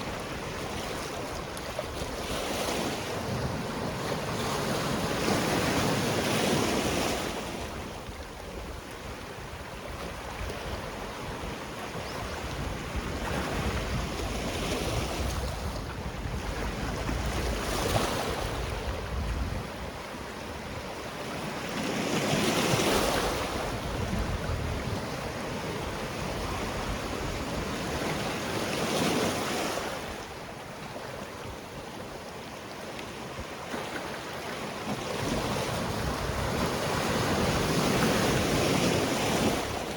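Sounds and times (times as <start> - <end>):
wind on microphone: 0.0 - 30.5, 35.0 - 39.9
waves washing on rocky shore: 33.6 - 39.9.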